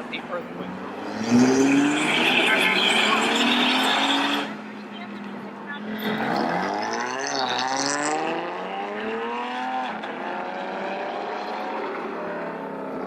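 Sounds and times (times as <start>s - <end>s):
car engine accelerating hard: 5.8s - 13.0s.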